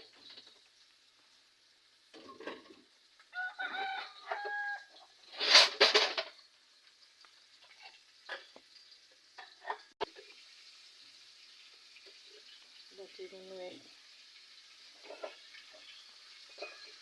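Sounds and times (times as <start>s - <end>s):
chicken frying in oil: 0.0s - 17.0s
fowl calling: 3.4s - 5.1s.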